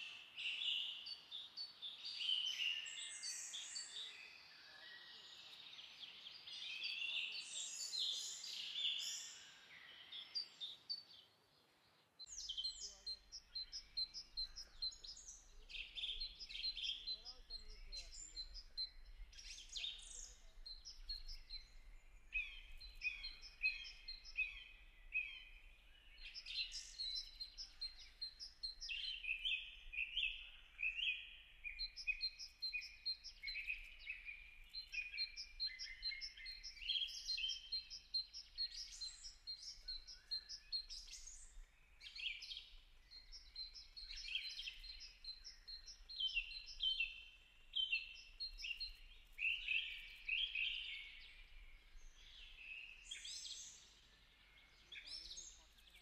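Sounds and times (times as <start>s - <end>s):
wild birds chirping: 0.0s - 56.0s.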